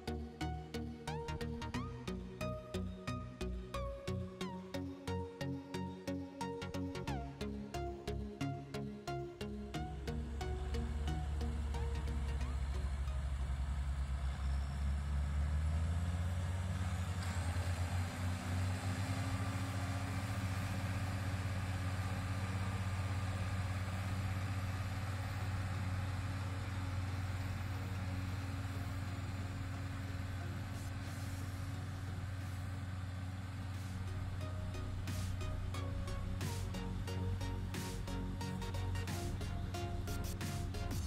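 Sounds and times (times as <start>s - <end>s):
tractor diesel engine running: 9.1s - 41.0s.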